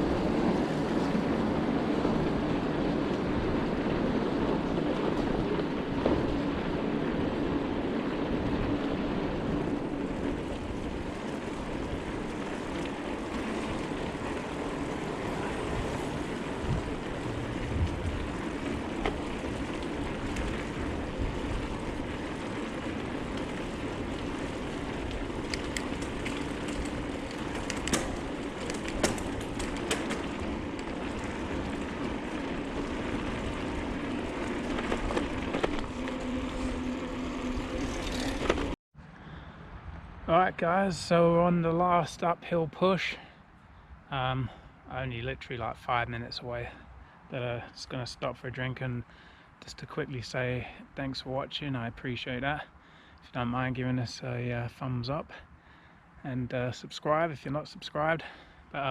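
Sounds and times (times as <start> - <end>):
bike clicks and rattles: 0.0 - 38.8
wind on microphone: 0.0 - 38.8
bicycle tyre rumble: 0.0 - 58.9.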